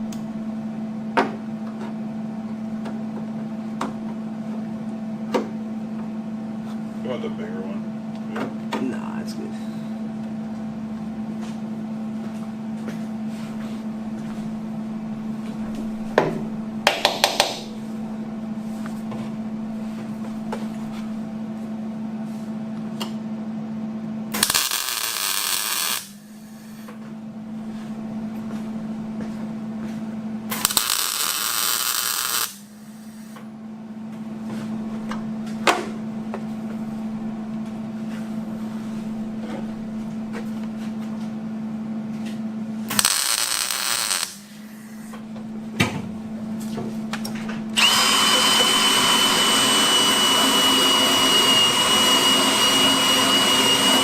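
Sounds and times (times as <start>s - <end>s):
steady hum: 0.0s - 54.0s
welding bursts: 24.3s - 26.8s, 30.5s - 33.3s, 42.9s - 45.1s, 47.8s - 54.0s.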